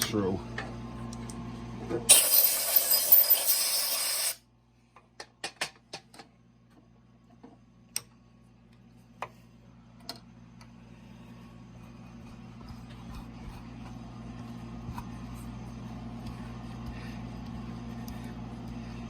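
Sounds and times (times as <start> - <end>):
air blow gun hissing: 2.1 - 4.4.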